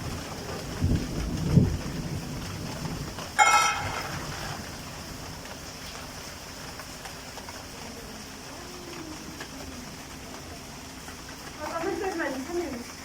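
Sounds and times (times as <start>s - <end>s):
low rumble of thunder: 0.0s - 6.2s
steady rain falling: 0.0s - 13.0s.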